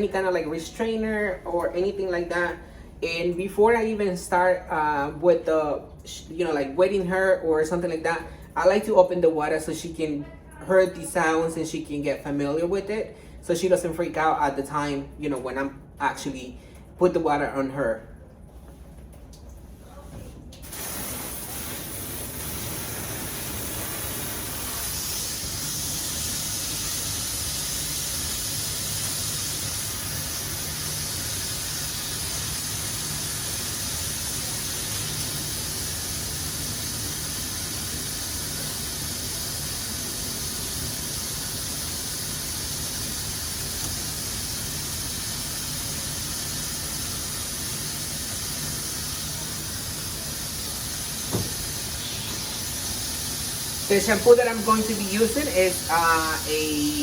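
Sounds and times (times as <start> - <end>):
water running into a tub: 20.5 - 57.0.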